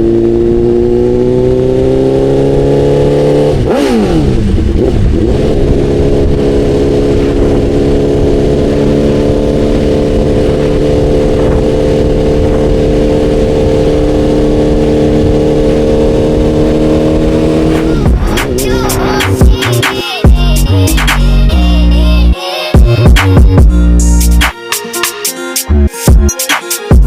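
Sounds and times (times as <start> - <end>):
wind rush: 3.6 - 20.0.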